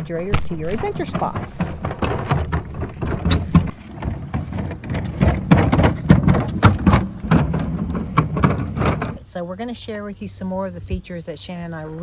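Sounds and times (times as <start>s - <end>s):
irregular clicks and crackle: 0.0s - 6.6s
fridge wheels rolling: 0.0s - 9.2s.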